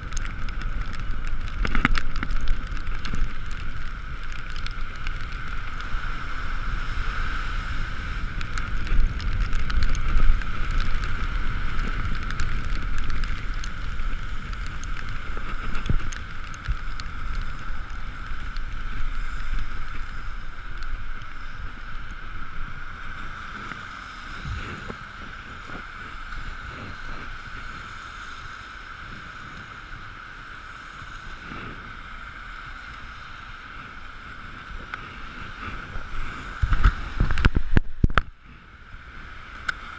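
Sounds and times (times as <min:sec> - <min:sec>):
wind buffeting microphone: 0:00.0 - 0:39.7
tyres hissing on wet road: 0:00.0 - 0:39.9.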